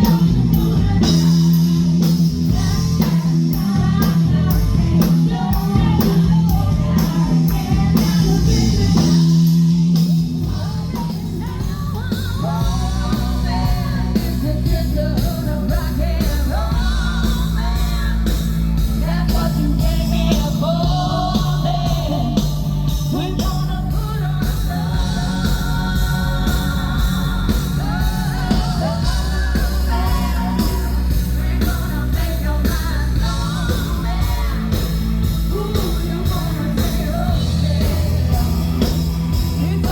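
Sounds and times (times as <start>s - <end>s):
lead singer: 0.0s - 39.9s
rock band playing live: 0.0s - 39.9s.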